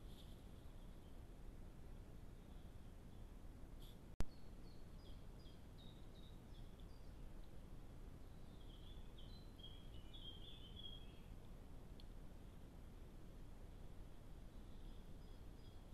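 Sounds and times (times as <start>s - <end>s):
low background hiss: 0.0s - 15.9s
small songbird singing: 4.2s - 12.1s, 14.4s - 15.9s.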